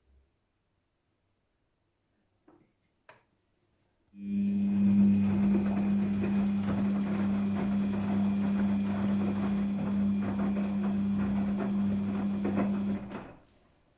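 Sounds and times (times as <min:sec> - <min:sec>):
loud steady electric hum: 0:04.2 - 0:13.0
washing machine running: 0:04.2 - 0:13.4.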